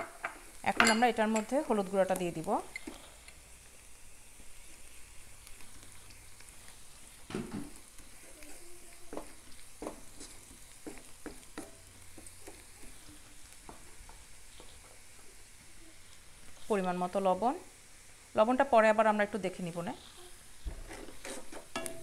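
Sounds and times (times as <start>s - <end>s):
onions sizzling in oil: 0.0s - 22.0s
wooden spatula knocking pan: 9.1s - 13.0s.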